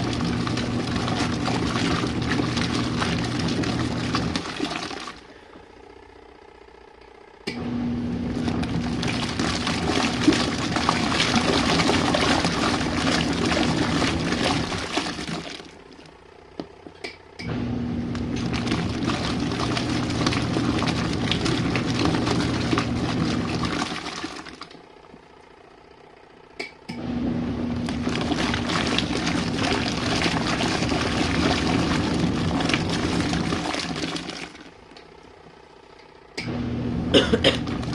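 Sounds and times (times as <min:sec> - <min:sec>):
water sloshing: 0:00.0 - 0:05.2, 0:08.4 - 0:16.1, 0:18.3 - 0:24.8, 0:27.8 - 0:35.1
washing machine motor hum: 0:00.0 - 0:37.9.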